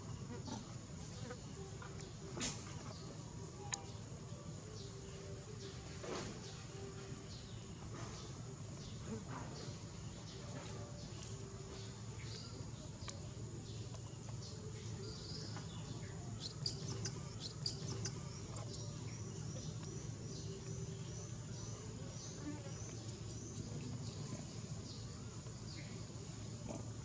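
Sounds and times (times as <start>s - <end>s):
steady low hum: 0.0s - 27.0s
insect chirping: 12.1s - 27.0s.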